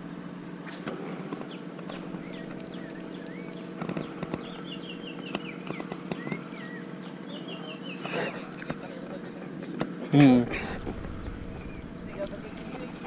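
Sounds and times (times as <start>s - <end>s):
steady low hum: 0.0s - 13.0s
birds chirping: 0.7s - 13.0s
sharp clicks: 1.3s - 4.5s.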